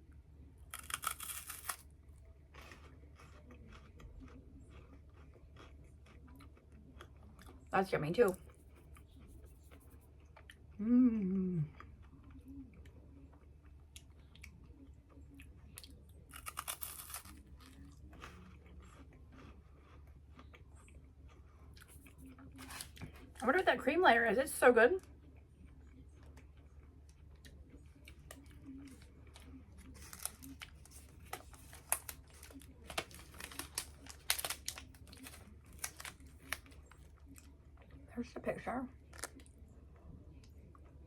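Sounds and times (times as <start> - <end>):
wafer bar crunching while chewed: 0.6 - 7.6, 15.8 - 23.3, 26.2 - 37.5
plastic wrapper crinkling: 28.3 - 37.0.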